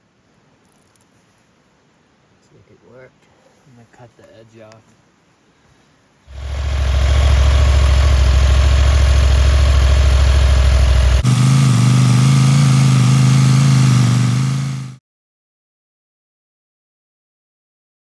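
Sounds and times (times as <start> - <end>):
air compressor humming: 6.3 - 15.0.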